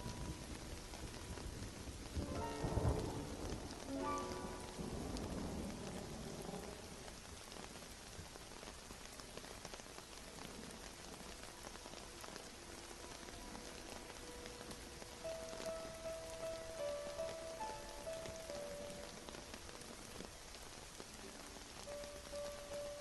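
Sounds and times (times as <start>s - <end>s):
thunder rumbling: 0.0s - 9.0s, 10.5s - 23.0s
steady rain falling: 0.0s - 23.0s
faint sustained music notes: 2.2s - 5.6s, 11.6s - 19.9s, 21.5s - 23.0s.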